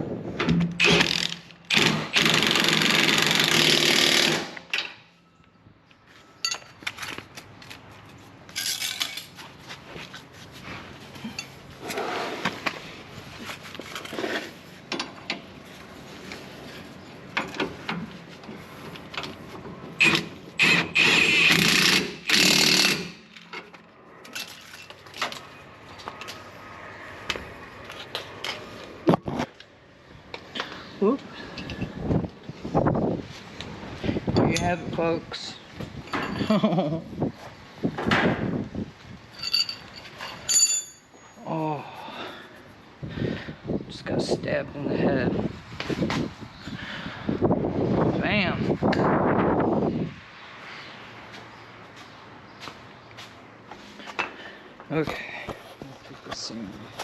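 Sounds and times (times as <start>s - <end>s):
impact wrench bursts: 0.8s - 4.7s, 20.0s - 23.3s
tools and parts clinking: 6.4s - 7.8s, 8.5s - 9.5s, 11.2s - 12.0s, 22.3s - 26.3s, 31.5s - 32.0s, 36.0s - 36.7s, 39.3s - 41.4s.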